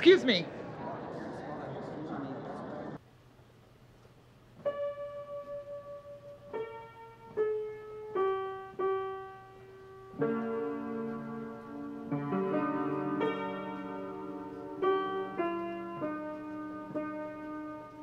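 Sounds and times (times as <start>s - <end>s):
slow solo piano: 4.6s - 18.0s.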